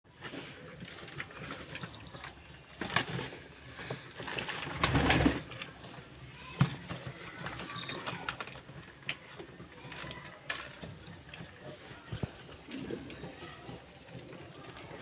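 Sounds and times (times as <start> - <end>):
pigeons cooing: 12.3 - 15.0.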